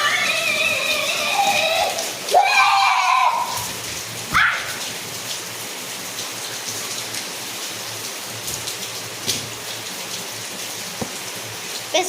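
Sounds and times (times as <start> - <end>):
raindrops pattering on surfaces: 0.0 - 12.0
steady rain falling: 0.0 - 12.0.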